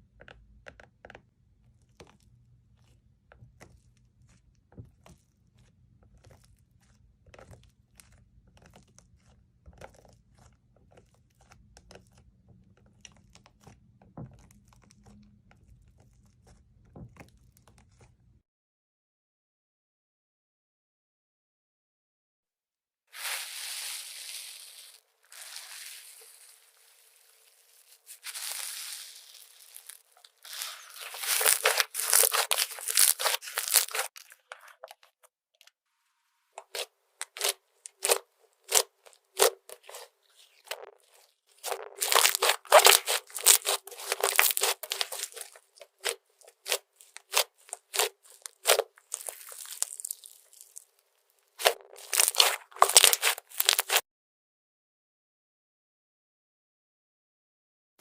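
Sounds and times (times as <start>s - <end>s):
slime crackling pops: 28.2s - 34.2s, 41.6s - 50.8s.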